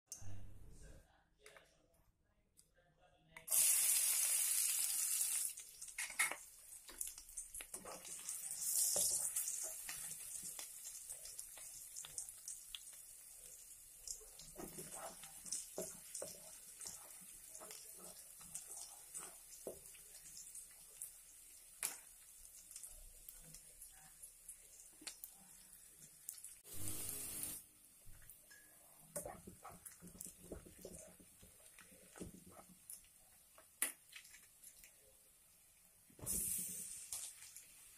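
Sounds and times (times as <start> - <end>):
onions sizzling in hot oil: 3.5 - 28.0, 36.2 - 37.9.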